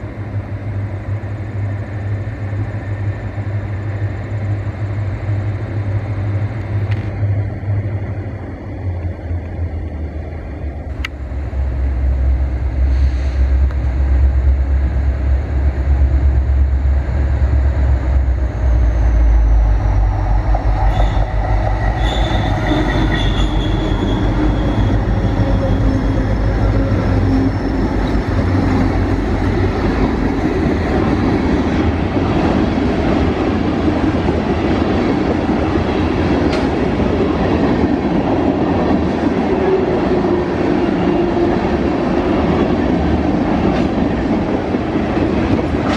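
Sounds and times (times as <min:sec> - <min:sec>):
diesel locomotive rumble: 0:00.0 - 0:45.9
rail clatter: 0:17.8 - 0:40.8, 0:41.4 - 0:45.9
wheel squeals: 0:20.8 - 0:28.0.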